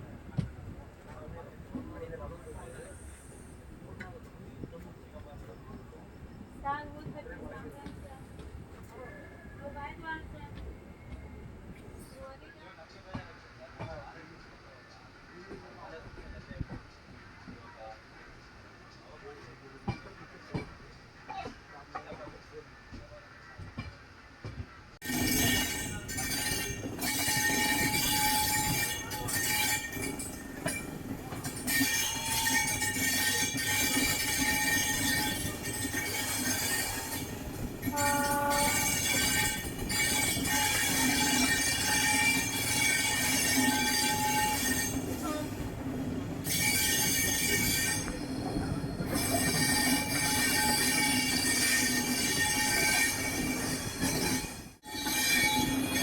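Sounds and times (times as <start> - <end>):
train wheels squealing: 2.2 - 4.5, 25.0 - 45.6, 46.3 - 56.0
train horn: 37.9 - 45.6.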